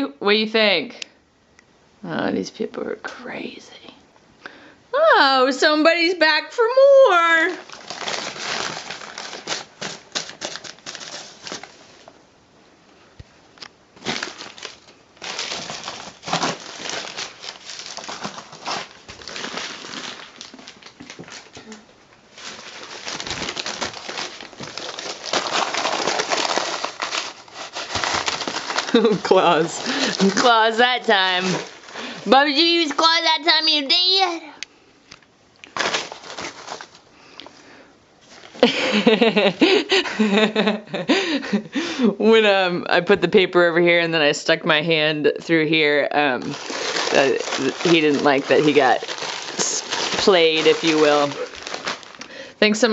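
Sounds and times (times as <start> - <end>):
paper flyer crinkling: 7.4 - 12.2, 14.0 - 33.3, 35.7 - 37.1, 46.3 - 52.9
woman talking and laughing: 28.9 - 31.6.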